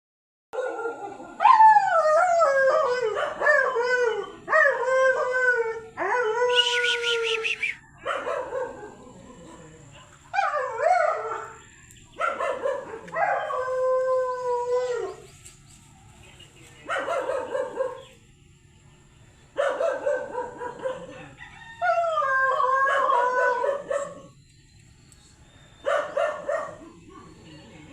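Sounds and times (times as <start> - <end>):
dog howling: 0.6 - 11.6, 12.2 - 15.3, 19.6 - 24.4
dog yelp: 12.2 - 13.7, 16.9 - 18.1, 19.6 - 21.1, 22.8 - 24.3, 25.8 - 27.4.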